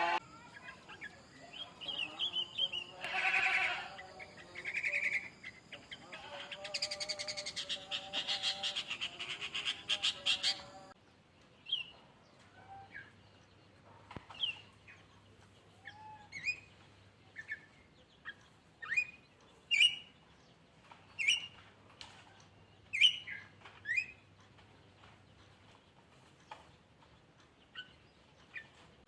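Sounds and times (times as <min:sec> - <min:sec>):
songbird chirps and whistles: 0:15.8 - 0:16.7, 0:17.4 - 0:20.2, 0:21.2 - 0:21.6.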